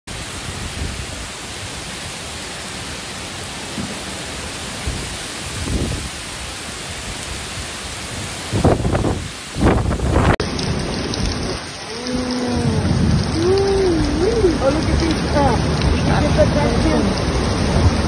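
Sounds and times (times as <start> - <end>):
heavy rain pouring: 0.1 - 18.0
low rumbles: 8.5 - 18.0.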